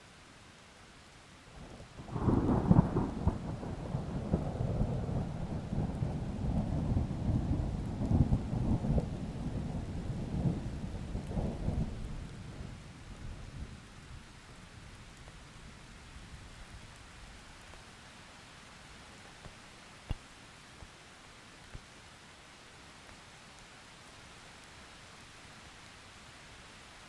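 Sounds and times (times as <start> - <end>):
steady falling rain: 0.0 - 27.0.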